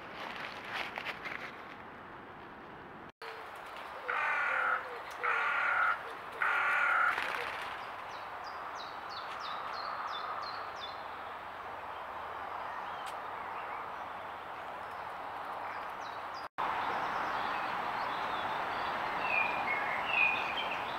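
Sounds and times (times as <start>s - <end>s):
harsh caw-like bird calls: 3.9s - 7.8s.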